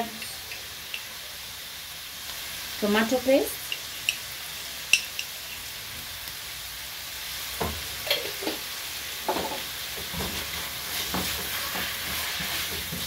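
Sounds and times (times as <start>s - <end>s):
vegetables sizzling in a frying pan: 0.0s - 13.0s
spatula scraping a pan: 9.3s - 13.0s.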